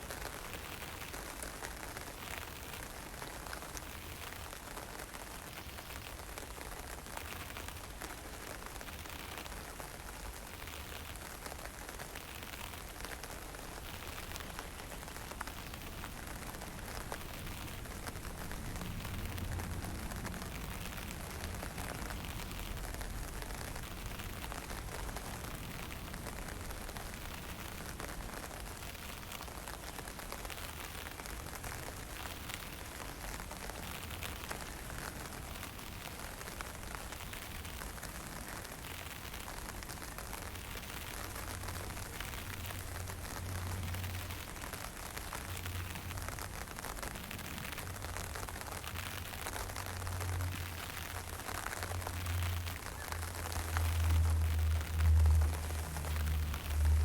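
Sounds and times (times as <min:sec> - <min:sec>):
drizzle and wind hissing: 0:00.0 - 0:57.0
low wind rumble: 0:14.4 - 0:30.2, 0:41.1 - 0:57.0.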